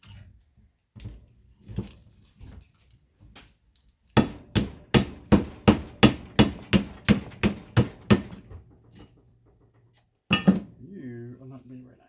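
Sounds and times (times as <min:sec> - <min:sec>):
hammer striking metal case: 0:04.2 - 0:09.2, 0:10.3 - 0:10.8.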